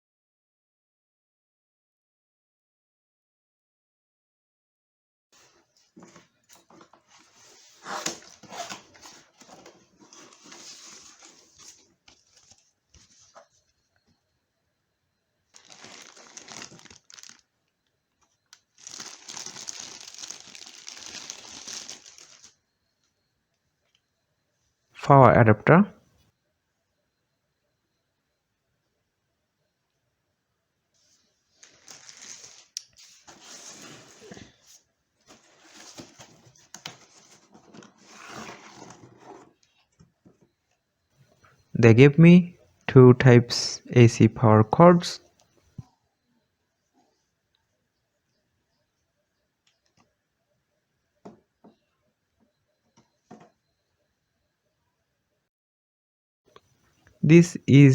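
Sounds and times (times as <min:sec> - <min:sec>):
packaging rustling: 0:06.0 - 0:13.5, 0:15.5 - 0:17.5, 0:18.5 - 0:22.6, 0:31.6 - 0:34.6
packaging crinkling: 0:15.6 - 0:17.5, 0:18.5 - 0:22.6, 0:31.6 - 0:32.9.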